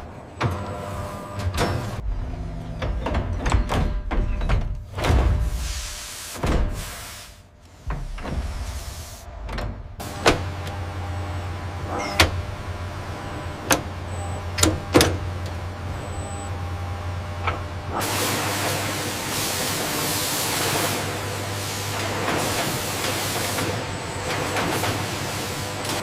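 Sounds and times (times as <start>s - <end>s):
loud hiss: 5.5s - 7.5s, 8.1s - 10.3s
machinery humming: 7.4s - 26.0s.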